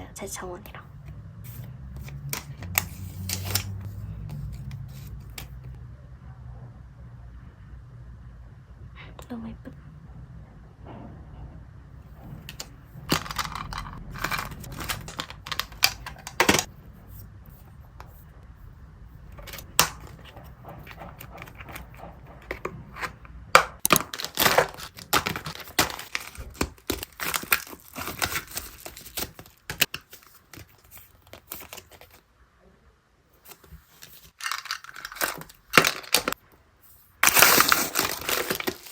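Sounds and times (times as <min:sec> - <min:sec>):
packaging rustling and crinkling: 0:12.2 - 0:16.7, 0:19.3 - 0:23.2, 0:23.8 - 0:32.2, 0:33.4 - 0:36.4, 0:37.2 - 0:38.9.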